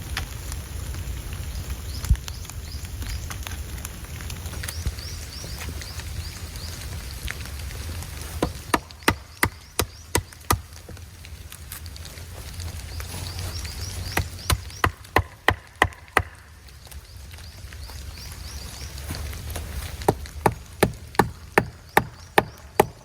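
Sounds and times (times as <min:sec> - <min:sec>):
hatchet knocking wood: 0:08.4 - 0:10.7, 0:14.1 - 0:16.4, 0:20.0 - 0:23.0.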